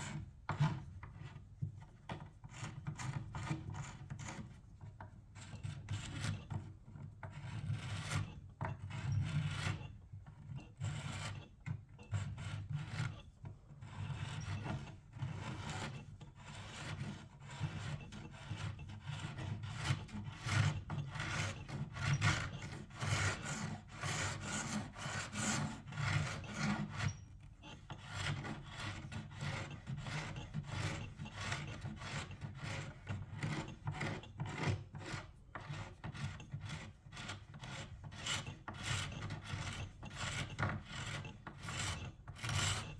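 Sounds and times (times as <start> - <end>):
rasping scraping strokes: 27.7 - 42.9.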